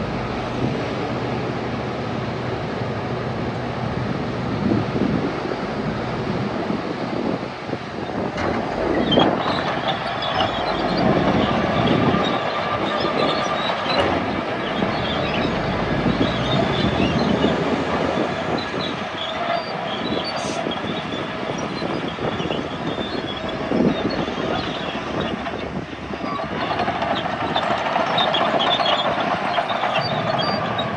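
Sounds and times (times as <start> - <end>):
diesel engine running: 0.0 - 30.9
steel tracks clattering: 8.0 - 30.9
high squeals from undercarriage: 8.9 - 17.6, 18.2 - 30.9.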